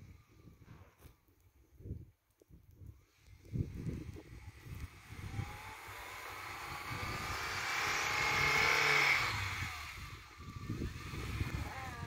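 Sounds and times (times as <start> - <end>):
car engine revving: 4.5 - 12.0.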